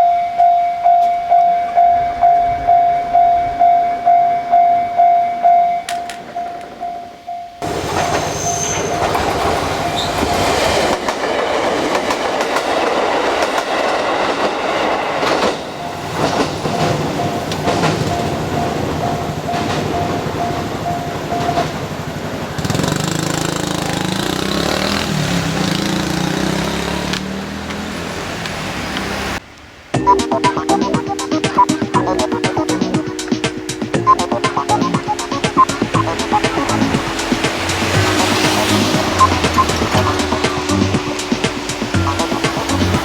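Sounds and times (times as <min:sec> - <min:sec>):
crossing warning bell ringing: 0:00.0 - 0:24.5, 0:30.0 - 0:43.0
train wheels clattering over rail joints: 0:07.6 - 0:27.3
music: 0:30.0 - 0:43.0.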